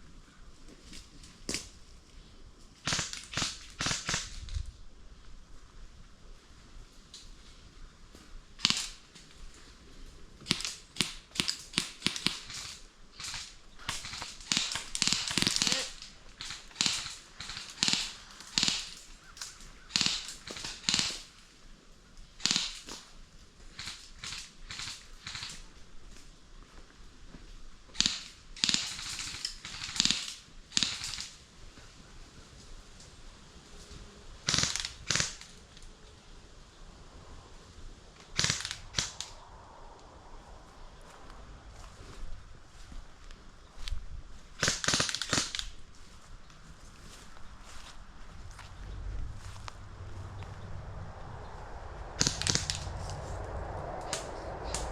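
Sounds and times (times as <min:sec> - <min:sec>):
airsoft guns firing: 0:02.8 - 0:04.4, 0:08.6 - 0:09.0, 0:10.4 - 0:21.3, 0:22.4 - 0:23.0, 0:28.0 - 0:31.4, 0:34.5 - 0:35.5, 0:38.3 - 0:39.4, 0:44.6 - 0:45.8, 0:52.2 - 0:52.9.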